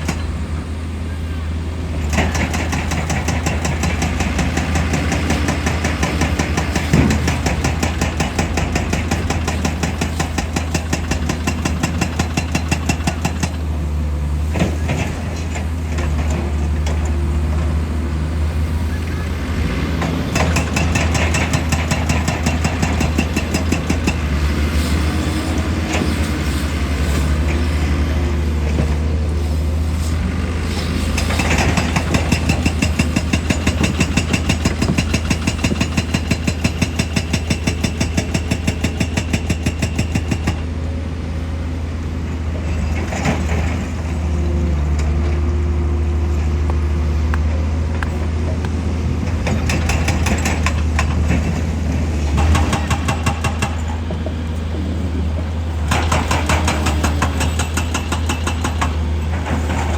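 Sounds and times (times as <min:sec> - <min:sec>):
excavator diesel engine running: 0:00.0 - 0:59.9
hydraulic rock breaker hammering: 0:02.0 - 0:13.8, 0:20.0 - 0:29.1, 0:31.1 - 0:40.7, 0:46.7 - 0:59.9.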